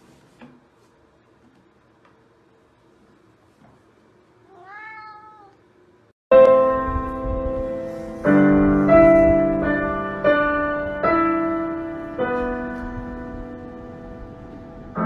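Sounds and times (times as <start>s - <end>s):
slow piano music: 6.3s - 15.0s.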